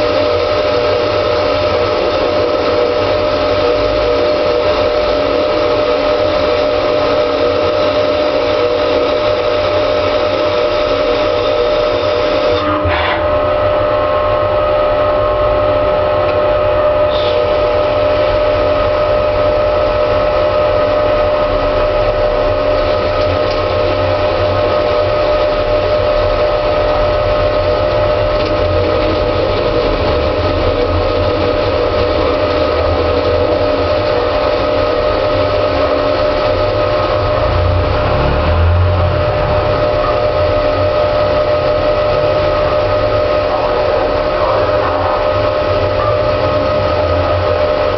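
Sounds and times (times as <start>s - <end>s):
lathe machine whine: 0.0s - 47.9s
deep machine rumble: 13.2s - 47.9s.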